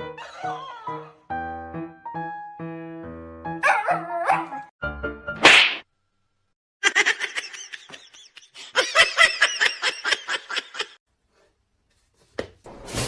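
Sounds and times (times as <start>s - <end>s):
person laughing: 6.8s - 11.0s.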